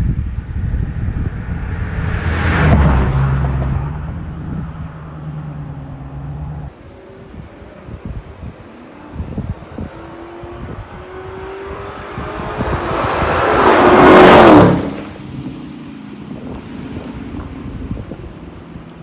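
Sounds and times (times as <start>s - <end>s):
wind buffeting microphone: 0.0s - 19.0s
car driving past: 1.1s - 15.2s.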